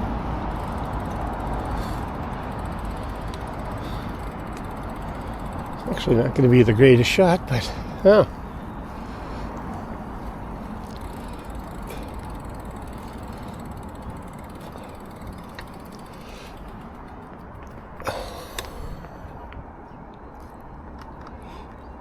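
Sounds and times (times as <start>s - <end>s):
sharp clatter: 0.0s - 7.7s, 9.6s - 18.8s
bicycle freewheel ratcheting: 0.0s - 19.4s
wind and tyre rumble: 0.0s - 22.0s.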